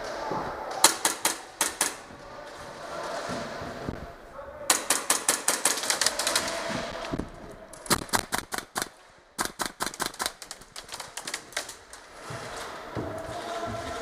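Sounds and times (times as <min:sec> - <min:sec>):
airsoft guns firing: 0:00.7 - 0:02.2, 0:04.7 - 0:12.0.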